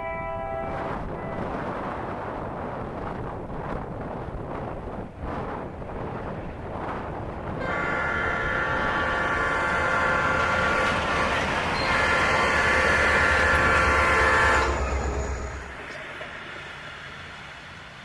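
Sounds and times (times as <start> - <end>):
locomotive horn blasts: 0.0 - 1.5, 7.6 - 15.8
diesel locomotive rumble: 0.4 - 18.0.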